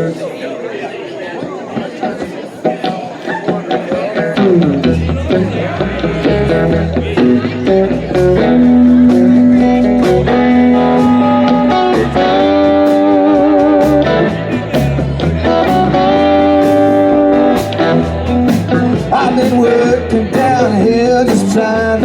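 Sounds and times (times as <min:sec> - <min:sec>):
electric guitar bent notes: 0:02.0 - 0:22.0
bass: 0:04.3 - 0:22.0
drum beat with cymbals: 0:07.2 - 0:22.0.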